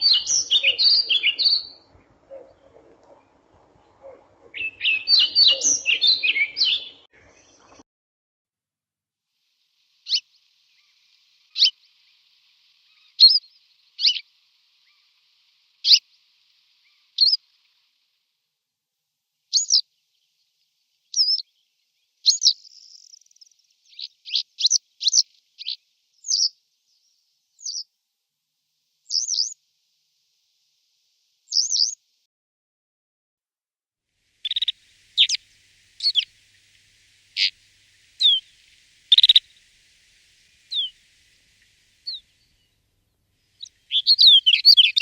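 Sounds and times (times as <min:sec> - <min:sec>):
songbird high calls: 0:00.0 - 0:07.8, 0:10.0 - 0:17.7, 0:19.5 - 0:19.8, 0:21.1 - 0:21.6, 0:22.2 - 0:26.5, 0:27.6 - 0:27.9, 0:29.1 - 0:29.6, 0:31.5 - 0:32.0, 0:34.4 - 0:45.0.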